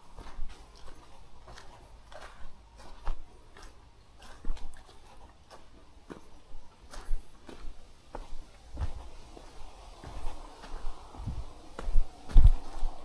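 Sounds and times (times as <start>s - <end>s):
footsteps crunching on trail: 0.0s - 13.0s
low rumble: 8.6s - 13.0s.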